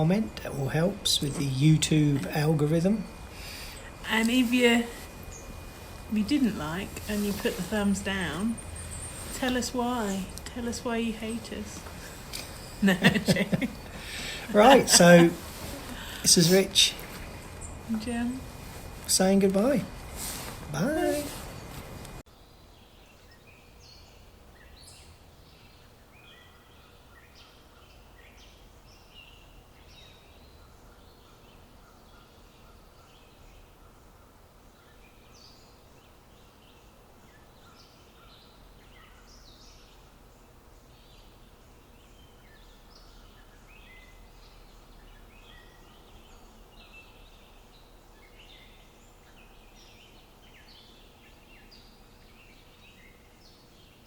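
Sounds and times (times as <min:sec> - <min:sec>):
low steady background rumble: 0:00.0 - 0:37.4
small birds chirping: 0:00.0 - 0:54.0.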